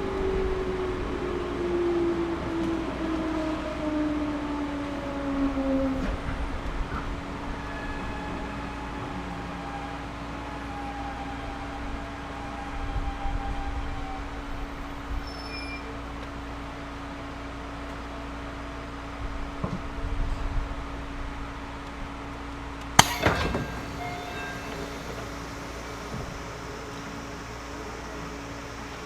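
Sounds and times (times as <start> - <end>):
train interior hum and rumble: 0.0 - 22.0, 22.9 - 29.0
falling electric motor tone: 23.0 - 29.0.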